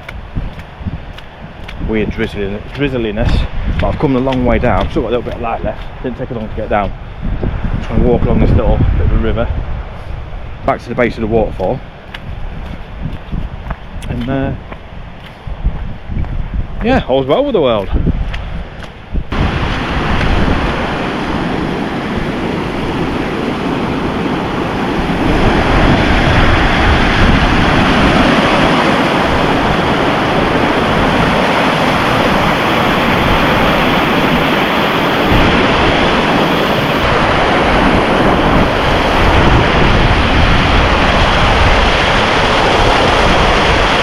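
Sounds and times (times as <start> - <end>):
wind buffeting microphone: 0.0 - 44.0
roar of rushing water: 18.6 - 44.0.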